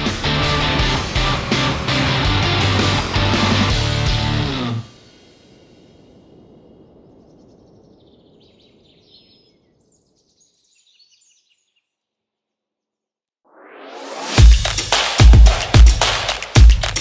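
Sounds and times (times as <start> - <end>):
faint outdoor ambience: 0.0 - 11.0
small birds chirping: 6.7 - 12.4.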